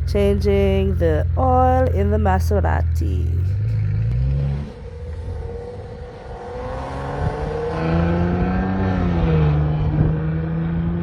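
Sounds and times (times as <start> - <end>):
car engine revving up: 3.4 - 11.0.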